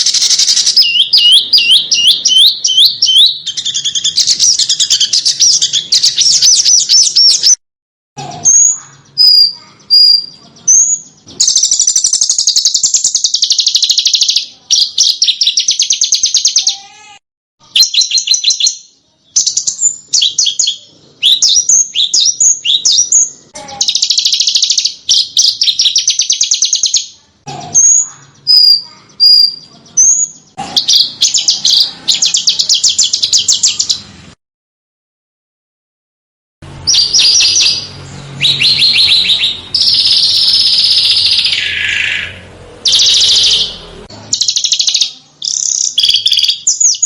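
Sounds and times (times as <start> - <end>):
songbird whistles and trills: 0.0 - 7.6, 8.4 - 16.7, 17.7 - 27.1, 27.8 - 34.0, 36.9 - 47.0.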